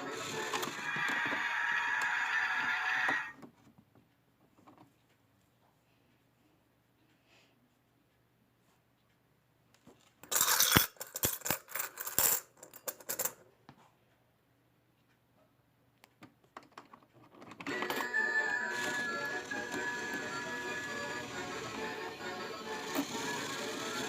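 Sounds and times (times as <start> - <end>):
coins clattering and clinking: 10.2 - 13.4.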